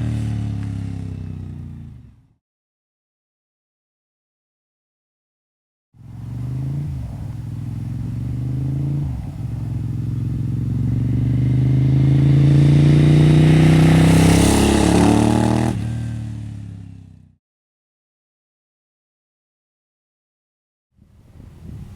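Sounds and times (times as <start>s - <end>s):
motorcycle accelerating hard: 0.0s - 2.4s, 6.0s - 17.4s.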